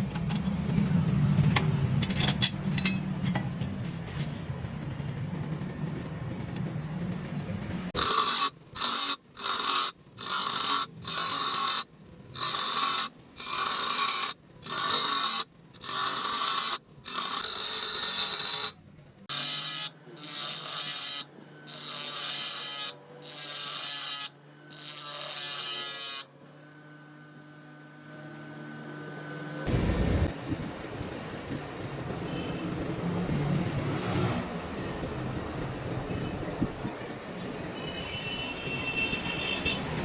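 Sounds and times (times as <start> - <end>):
cutting machine cutting metal shell: 8.0 - 29.7.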